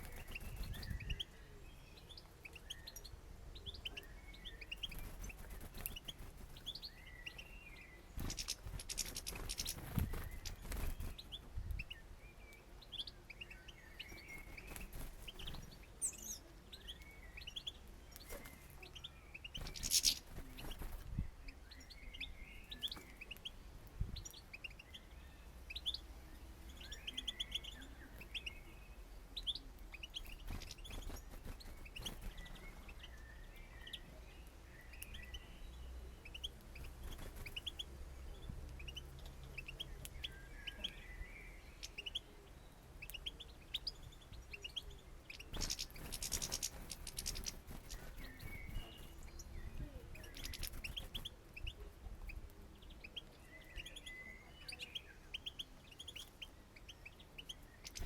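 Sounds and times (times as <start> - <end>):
birds wings fluttering: 0.0 - 1.0, 4.7 - 6.8, 8.2 - 11.5, 14.1 - 15.8, 19.6 - 21.2, 30.2 - 33.0, 36.8 - 37.8, 45.4 - 49.4, 50.1 - 51.4
songbirds twittering and chirping: 0.0 - 58.0.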